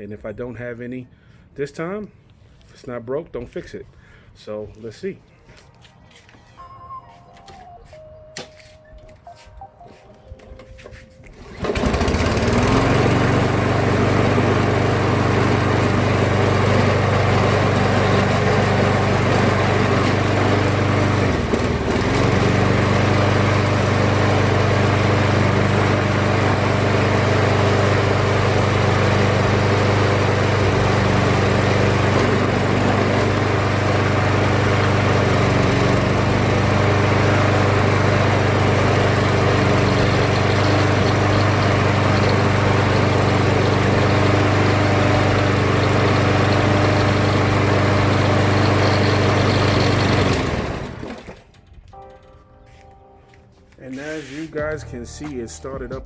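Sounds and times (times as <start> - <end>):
lawn mower engine running: 10.5 - 52.0.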